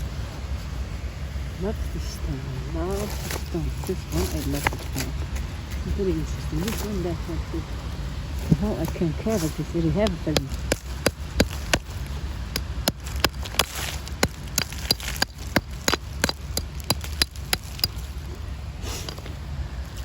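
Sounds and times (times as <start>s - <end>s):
low rumble: 0.0s - 20.0s
stones clicking and knocking: 8.4s - 18.4s.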